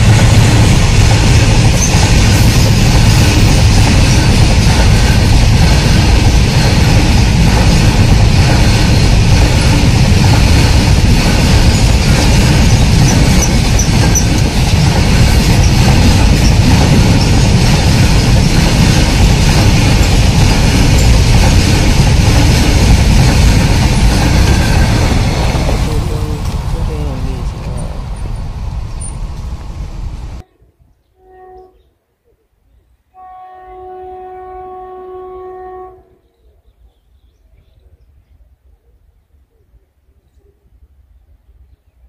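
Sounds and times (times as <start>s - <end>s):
freight train rolling past: 0.0s - 30.5s.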